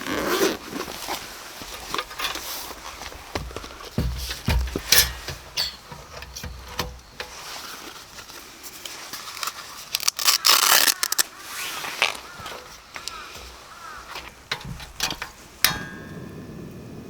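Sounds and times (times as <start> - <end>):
objects being handled: 0.0 - 15.8
dense rustle: 0.0 - 16.1.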